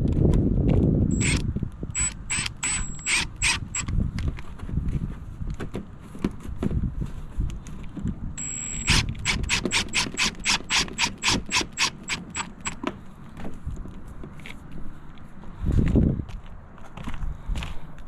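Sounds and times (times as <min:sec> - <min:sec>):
cordless driver motor whine: 0:01.1 - 0:04.0, 0:08.4 - 0:12.8
screwdriver clutch clicks: 0:01.1 - 0:04.0, 0:08.4 - 0:12.8.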